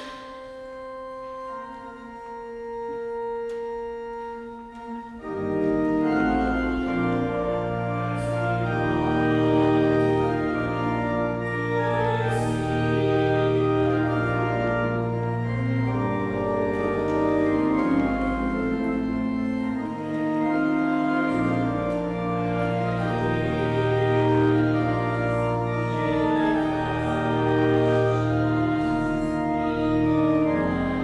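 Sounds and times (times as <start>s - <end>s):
organ playing a hymn: 0.0s - 31.0s.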